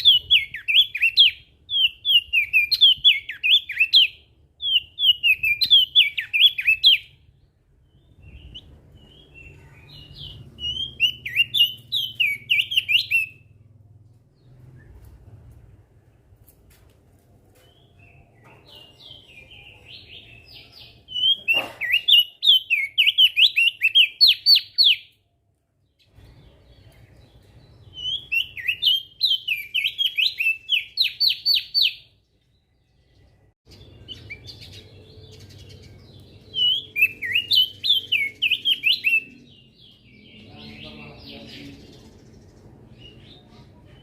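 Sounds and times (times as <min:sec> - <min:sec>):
bird whistled song: 0:00.0 - 0:07.3, 0:07.9 - 0:13.5, 0:17.6 - 0:25.2, 0:26.0 - 0:32.2, 0:33.7 - 0:40.5.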